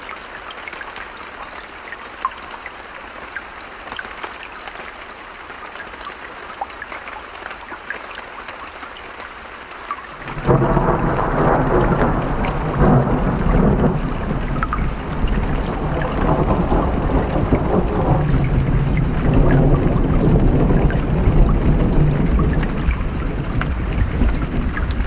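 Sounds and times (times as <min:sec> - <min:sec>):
steady rain: 0:00.0 - 0:25.0
rolling thunder rumble: 0:10.2 - 0:25.0.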